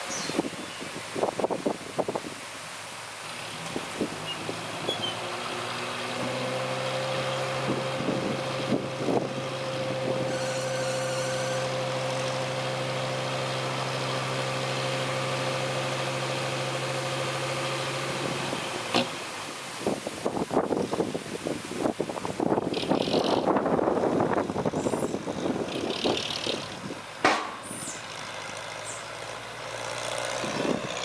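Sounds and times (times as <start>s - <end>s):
diesel engine running: 2.9s - 19.5s, 22.4s - 31.0s
short knocks: 27.2s - 27.8s.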